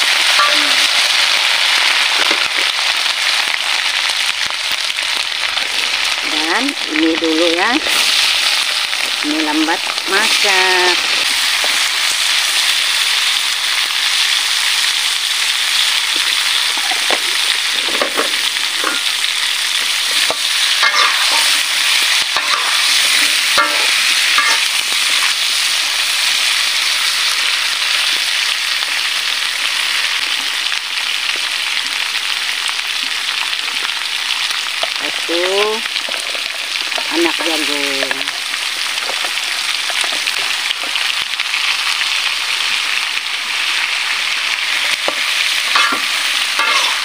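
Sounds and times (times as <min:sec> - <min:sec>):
food sizzling in hot oil: 0:00.0 - 0:47.0
metal spatula scraping wok: 0:00.1 - 0:01.1, 0:20.1 - 0:25.4, 0:45.0 - 0:47.0.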